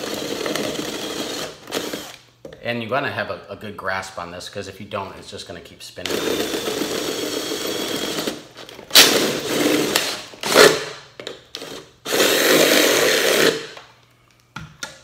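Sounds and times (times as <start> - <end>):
electric drill boring through metal: 0.0 - 2.2, 6.1 - 8.4, 11.6 - 13.6.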